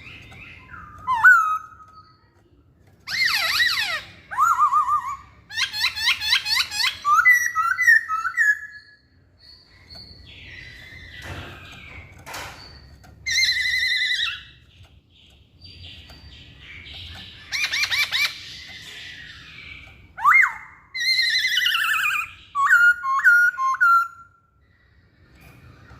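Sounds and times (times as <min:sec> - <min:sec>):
bird singing whistled phrases: 0:00.6 - 0:02.2, 0:06.5 - 0:10.9, 0:20.2 - 0:24.4.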